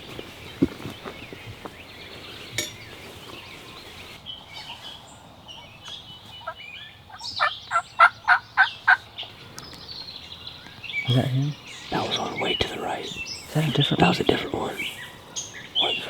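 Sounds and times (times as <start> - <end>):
small birds chirping: 0.0 - 16.0
turkey yelping: 6.4 - 9.1.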